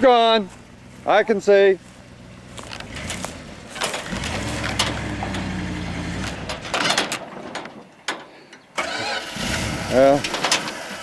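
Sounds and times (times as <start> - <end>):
truck engine labouring: 0.0 - 7.3, 8.8 - 11.0
log scraping on ground: 0.5 - 7.5.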